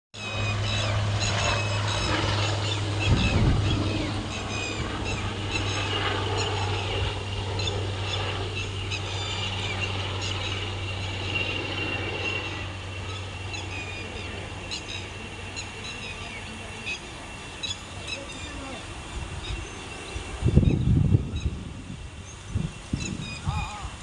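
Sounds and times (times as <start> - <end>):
birds chirping: 0.2 - 24.0
steady low hum: 0.2 - 24.0.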